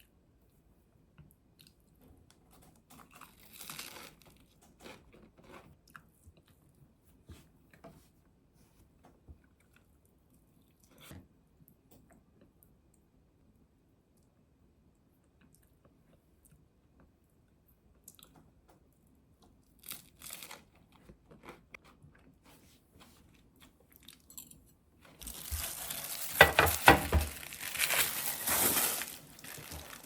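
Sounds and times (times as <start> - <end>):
crunching and chewing food: 1.2 - 7.0, 9.4 - 11.2, 15.0 - 17.2, 17.9 - 18.6, 19.4 - 22.4, 23.2 - 30.0.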